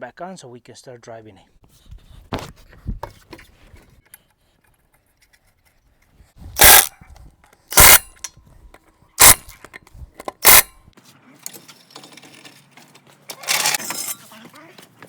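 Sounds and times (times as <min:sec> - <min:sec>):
impact wrench bursts: 0:06.6 - 0:06.9, 0:07.7 - 0:08.2, 0:09.2 - 0:09.6, 0:10.3 - 0:10.8, 0:13.4 - 0:13.9.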